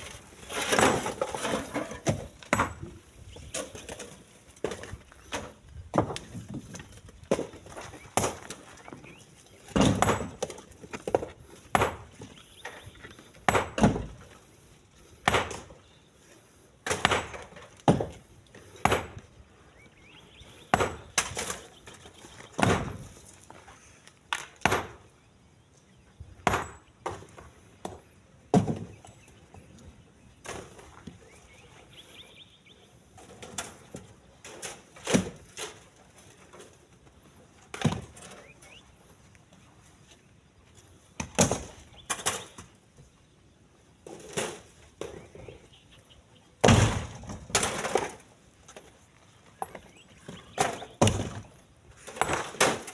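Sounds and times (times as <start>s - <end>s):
stones knocking into truck bed: 9.7s - 12.2s.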